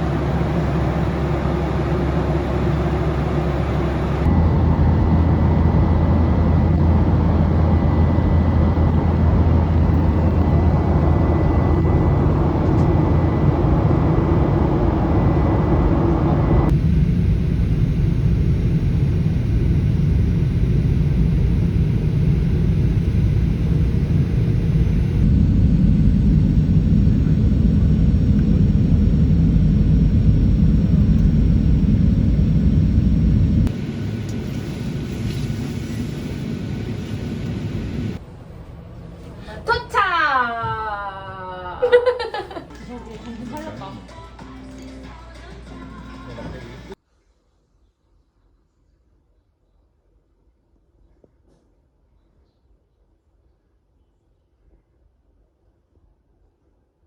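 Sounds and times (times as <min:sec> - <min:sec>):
moving vehicle rumble: 0:00.0 - 0:39.7.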